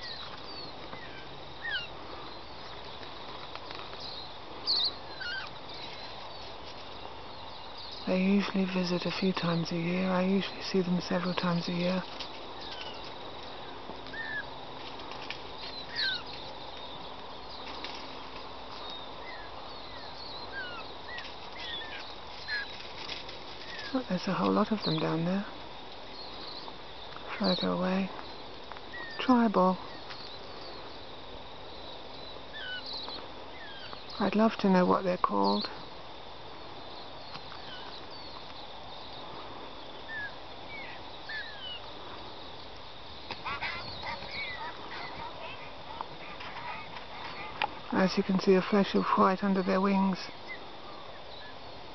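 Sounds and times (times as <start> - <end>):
birds chirping and whistling: 0.0 - 3.0, 3.6 - 9.6, 12.6 - 14.6, 15.5 - 17.9, 18.8 - 22.8, 26.1 - 31.1, 31.7 - 34.4, 36.9 - 47.8
steady outdoor hiss: 0.0 - 51.9
faint falling bird chirps: 15.2 - 22.9.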